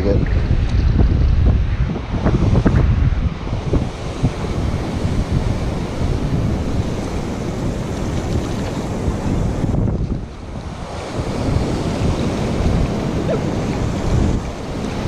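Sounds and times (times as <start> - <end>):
ocean surf: 0.0 - 15.0
wind buffeting microphone: 0.0 - 15.0.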